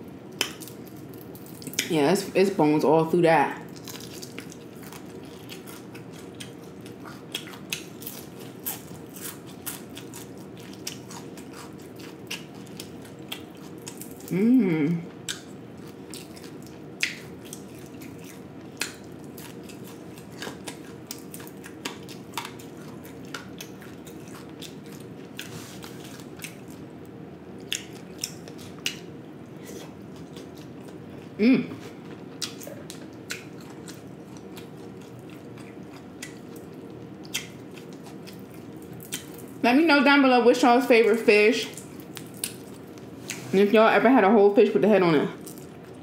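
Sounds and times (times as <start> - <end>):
faint steady hum: 0.0 - 46.0
person humming: 14.3 - 15.0, 31.4 - 31.8.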